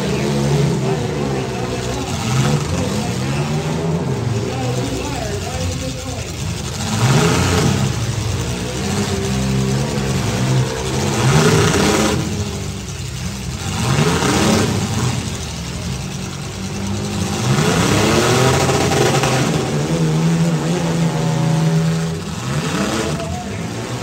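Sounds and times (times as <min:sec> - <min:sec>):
car engines revving: 0:00.0 - 0:24.0
cars ramming: 0:00.0 - 0:24.0.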